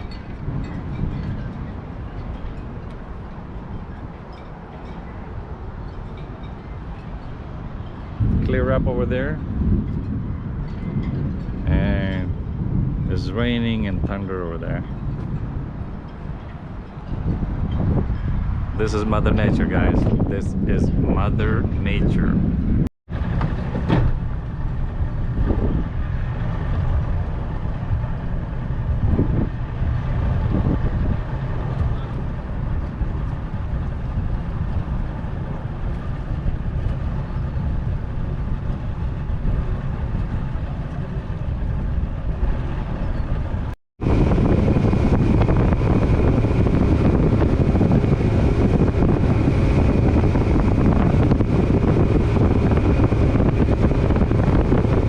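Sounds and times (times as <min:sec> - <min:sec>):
wind buffeting microphone: 0:00.0 - 0:55.0
steady high whine: 0:23.1 - 0:55.0
boat motor running: 0:23.2 - 0:55.0.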